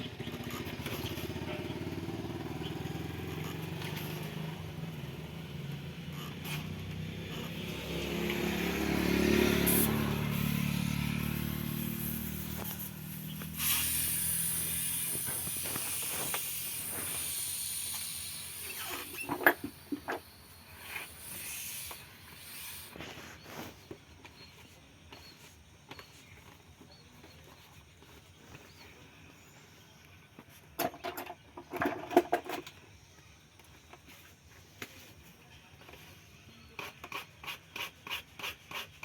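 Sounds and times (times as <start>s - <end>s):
vehicle engine passing by: 0.0s - 23.7s
steady hiss: 11.9s - 23.1s.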